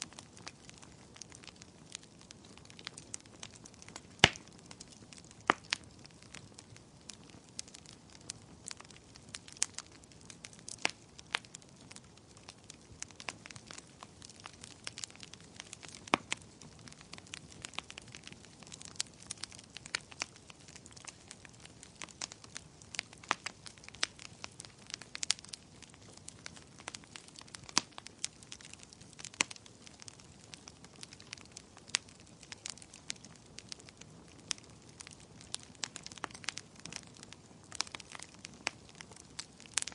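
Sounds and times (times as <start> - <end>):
faint steady hiss: 0.0 - 39.9
wood fire crackling: 0.0 - 39.9
sharp pops and snaps: 2.7 - 5.8.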